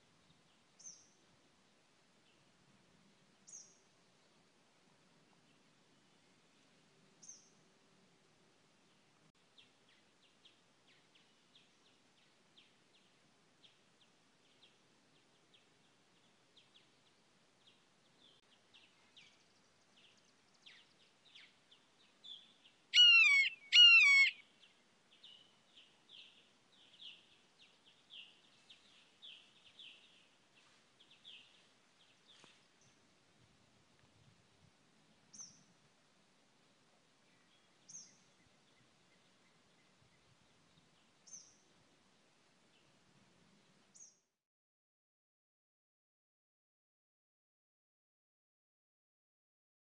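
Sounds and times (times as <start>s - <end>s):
faint bird chirping: 0.0s - 1.3s, 3.3s - 4.4s, 5.2s - 7.7s, 8.8s - 33.1s, 35.2s - 35.8s, 36.8s - 41.8s, 43.9s - 44.4s
harsh bird calls: 23.0s - 24.4s.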